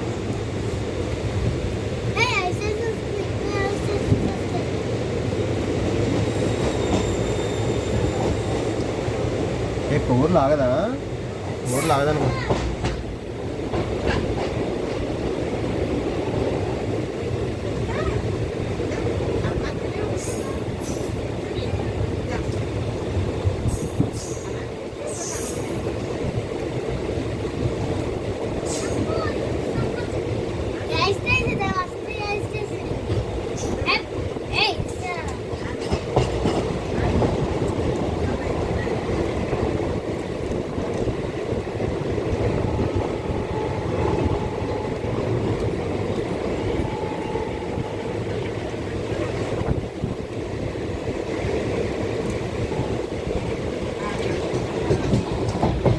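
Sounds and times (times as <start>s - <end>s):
train rumbling on rails: 0.0s - 55.9s
high-pitched wheel squeals: 6.3s - 8.6s.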